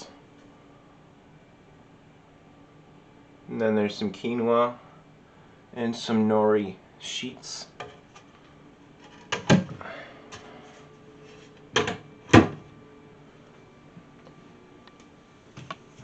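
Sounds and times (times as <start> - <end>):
knocks of packages and shelves: 9.2 - 9.8, 11.8 - 12.7.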